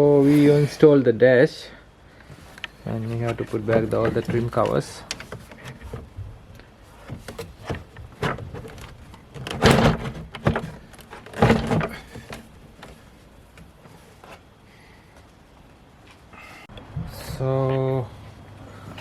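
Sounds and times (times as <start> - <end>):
plastic scraping: 3.0 - 13.8.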